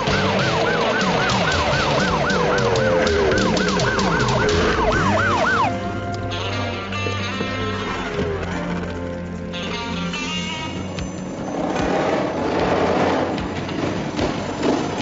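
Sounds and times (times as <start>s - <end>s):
emergency siren yelping: 0.0s - 9.5s
music score: 0.0s - 11.2s.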